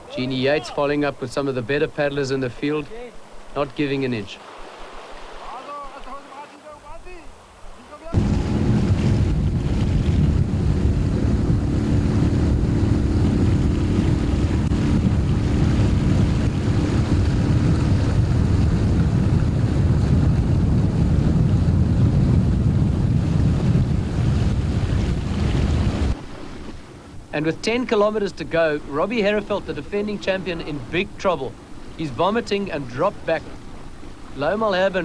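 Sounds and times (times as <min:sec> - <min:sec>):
wind buffeting microphone: 0:08.1 - 0:27.3.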